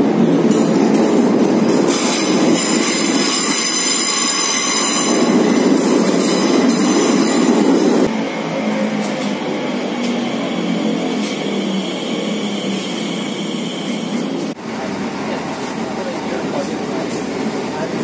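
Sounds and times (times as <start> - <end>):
train wheels rumbling on rails: 0.0 - 18.0
high-pitched brake squeal: 9.8 - 14.5.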